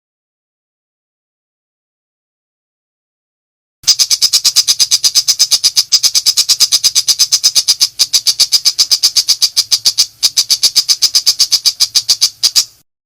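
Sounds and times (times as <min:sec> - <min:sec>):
bird rapid clicking song: 0:03.8 - 0:12.8.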